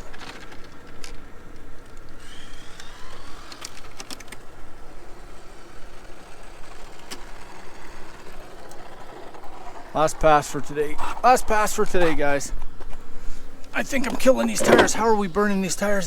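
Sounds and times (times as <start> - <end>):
outdoor noise: 0.0 - 16.0
electric motor whine: 2.2 - 9.6.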